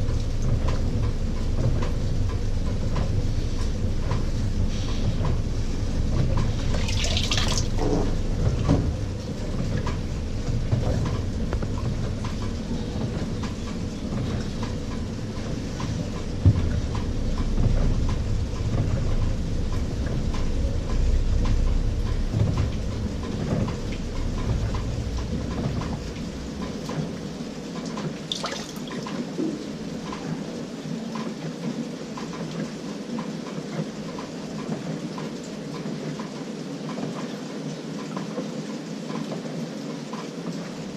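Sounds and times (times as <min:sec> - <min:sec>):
water sloshing and dripping: 0:00.0 - 0:32.8
washing machine churning: 0:00.0 - 0:40.9.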